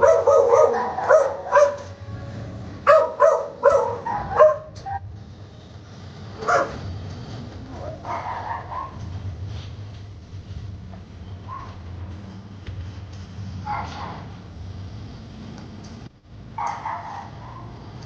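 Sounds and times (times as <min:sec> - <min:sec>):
dog barking: 0:00.0 - 0:02.0, 0:02.8 - 0:05.0, 0:06.4 - 0:06.8, 0:07.7 - 0:09.0, 0:11.4 - 0:11.8, 0:13.6 - 0:14.3, 0:16.6 - 0:17.8.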